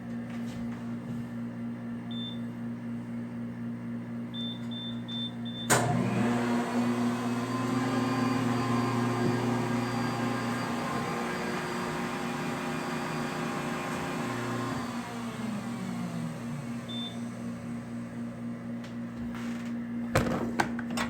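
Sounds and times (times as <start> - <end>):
vending machine humming: 0.0 - 21.0
machine beeps: 4.4 - 5.7
motor spinning up and running: 5.8 - 18.4.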